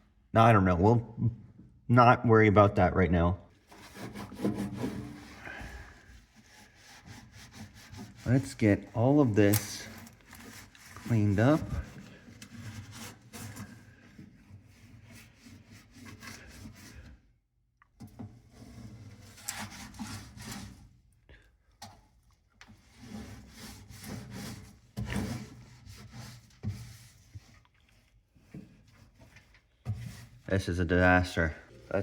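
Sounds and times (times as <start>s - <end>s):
paper towel scrubbing microwave: 3.6s - 17.0s, 31.7s - 32.0s.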